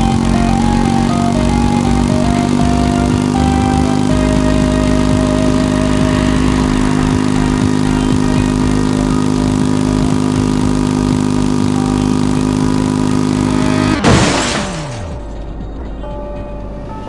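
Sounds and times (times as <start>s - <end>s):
tone falling in pitch: 0.0s - 7.6s
vehicle engine droning: 0.0s - 17.0s
loud crash-like burst: 13.8s - 15.4s.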